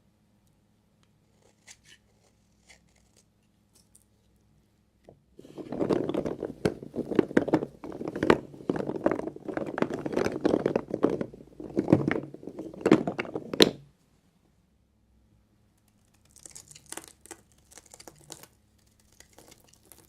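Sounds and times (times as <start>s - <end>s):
knife cutting soap: 1.1s - 3.9s.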